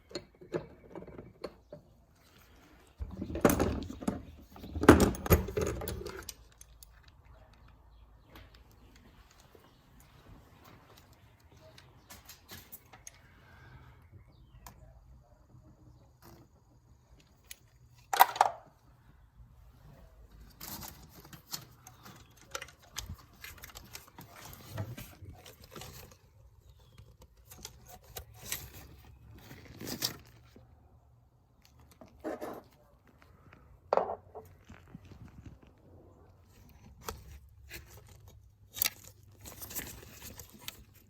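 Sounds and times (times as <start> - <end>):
tools and parts clinking: 3.0 - 13.3, 17.2 - 18.9, 20.3 - 30.6, 36.5 - 41.0.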